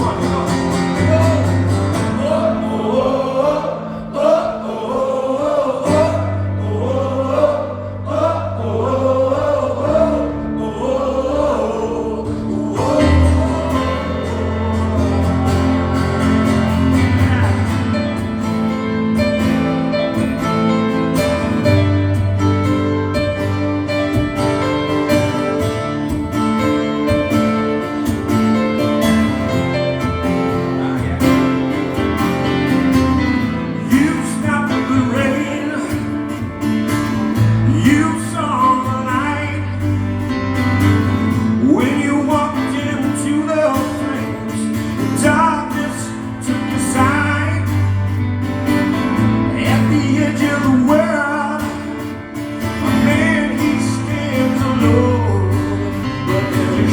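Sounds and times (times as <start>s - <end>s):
acoustic guitar strumming chords: 0.0s - 56.9s.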